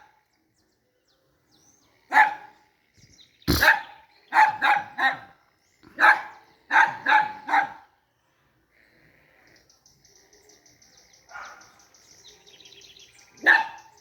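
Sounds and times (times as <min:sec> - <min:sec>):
birds chirping faintly: 0:00.0 - 0:14.0
dog barking: 0:02.1 - 0:02.6, 0:03.5 - 0:07.9, 0:11.3 - 0:11.8, 0:13.4 - 0:14.0.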